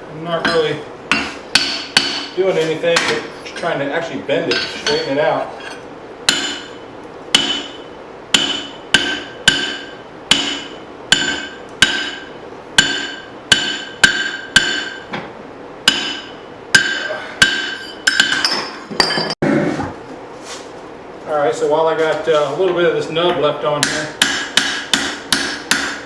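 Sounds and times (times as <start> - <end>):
hammer striking steel on anvil: 0.4 - 2.4, 4.4 - 15.2, 15.8 - 19.4, 23.8 - 26.0.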